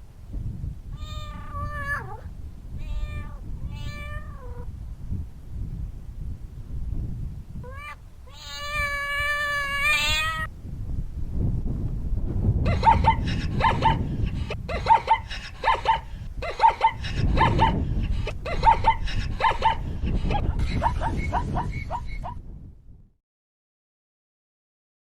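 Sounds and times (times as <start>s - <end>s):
cat meowing: 1.0s - 4.7s, 7.6s - 10.5s.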